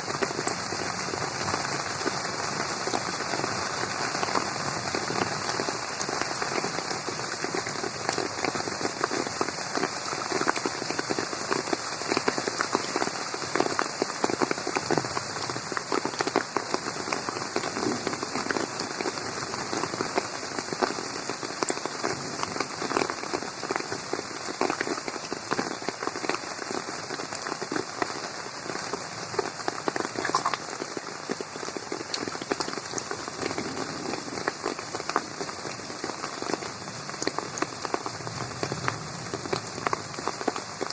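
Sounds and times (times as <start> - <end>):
rain falling on a pond: 0.0 - 40.9.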